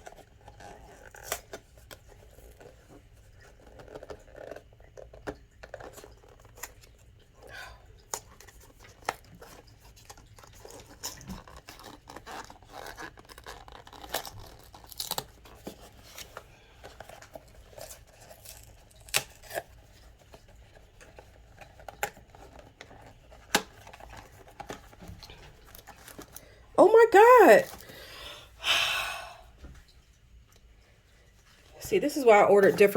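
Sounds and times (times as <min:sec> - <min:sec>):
cardboard packaging tearing: 0:10.4 - 0:16.4, 0:17.1 - 0:19.8.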